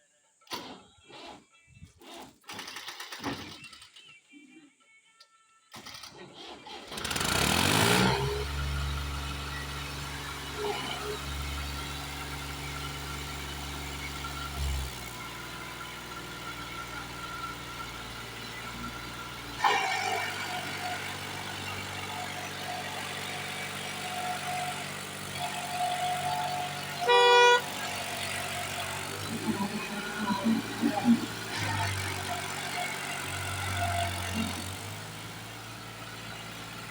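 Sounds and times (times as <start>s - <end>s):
tractor engine running: 6.4s - 36.9s
horn honk: 26.4s - 28.6s.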